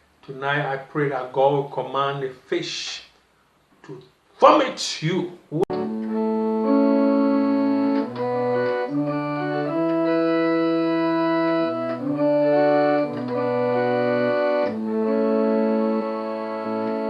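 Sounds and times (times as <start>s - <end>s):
organ chords: 3.9s - 17.0s.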